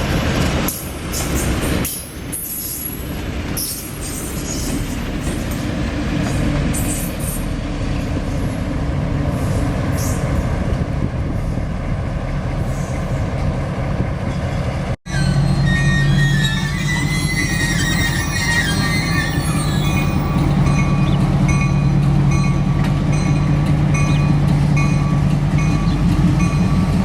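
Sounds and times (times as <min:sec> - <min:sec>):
train rumbling on track: 0:00.0 - 0:27.0
high-pitched squeals: 0:14.5 - 0:21.8.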